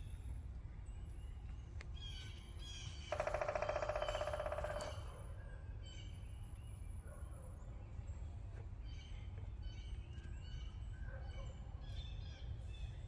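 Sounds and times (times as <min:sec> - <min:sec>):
loud rapid bird trill: 0:02.7 - 0:05.1.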